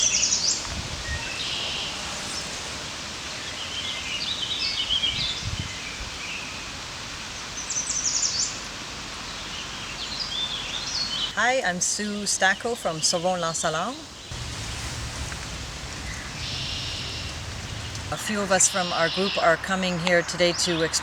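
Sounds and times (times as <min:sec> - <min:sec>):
songbirds singing: 0:00.0 - 0:21.0
steady outdoor hiss: 0:00.0 - 0:21.0.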